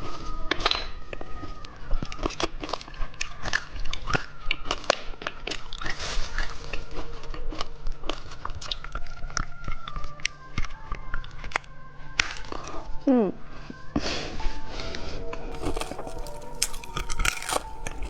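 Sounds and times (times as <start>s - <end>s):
hard candy being crunched: 15.5s - 18.0s.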